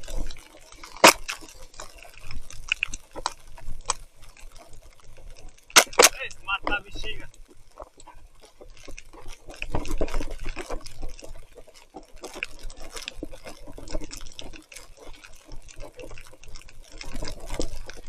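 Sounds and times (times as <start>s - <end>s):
irregular ticks and crackles: 0.0s - 18.0s
water splashing and dripping: 0.0s - 18.0s.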